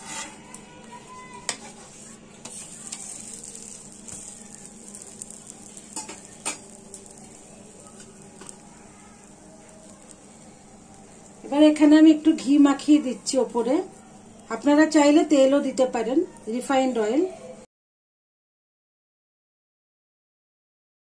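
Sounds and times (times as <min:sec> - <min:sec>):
metal spatula scraping pan: 0:00.0 - 0:07.2
paratha sizzling on griddle: 0:00.0 - 0:17.7.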